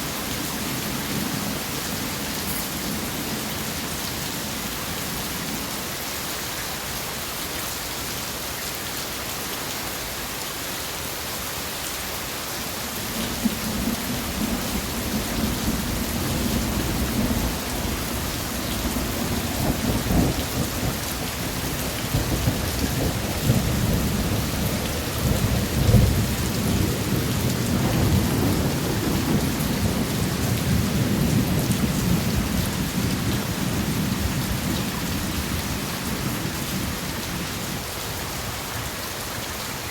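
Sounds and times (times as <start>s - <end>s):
heavy rain: 0.0s - 39.9s
rolling thunder: 13.2s - 35.4s.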